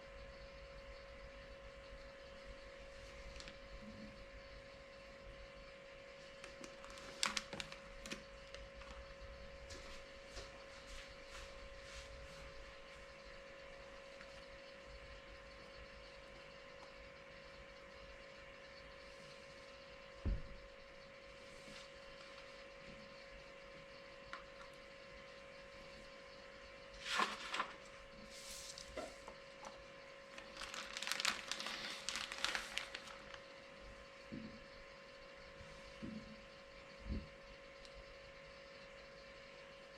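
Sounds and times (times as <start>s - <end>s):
faint electrical hum: 0.0s - 39.9s
packaging crackling and rustling: 6.4s - 9.0s, 27.0s - 27.9s, 30.3s - 33.4s.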